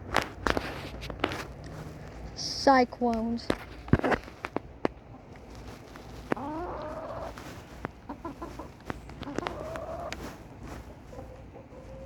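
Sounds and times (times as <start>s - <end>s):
chickens clucking: 3.9s - 12.0s.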